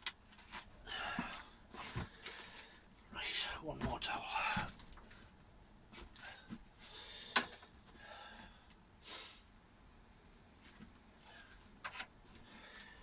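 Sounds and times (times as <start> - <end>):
short sniff: 9.0 - 9.5.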